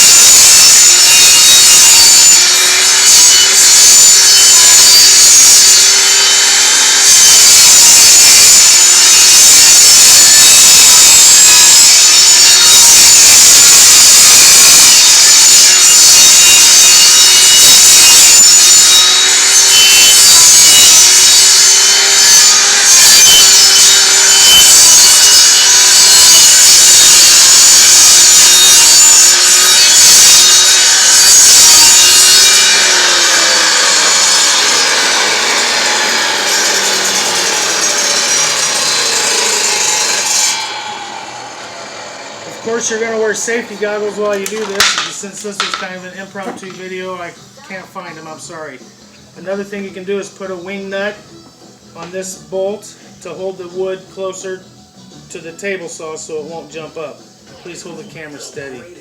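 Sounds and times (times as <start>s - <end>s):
table saw cutting plywood: 0.0s - 46.9s.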